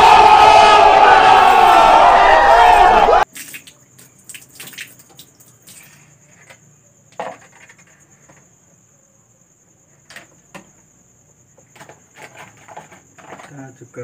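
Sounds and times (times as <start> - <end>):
high insect trill: 3.2 - 14.0
water splashing: 3.3 - 5.9.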